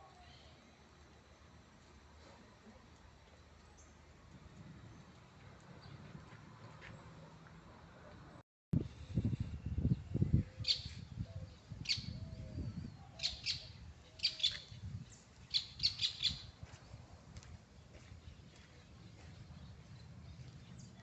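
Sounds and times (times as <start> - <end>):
birds chirping: 9.8 - 16.6, 17.7 - 21.0.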